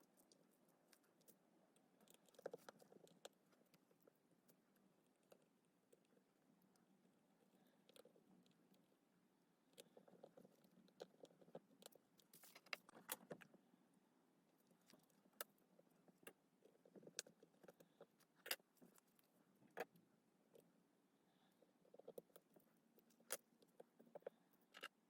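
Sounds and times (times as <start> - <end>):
light scraping of small parts: 9.8 - 13.5.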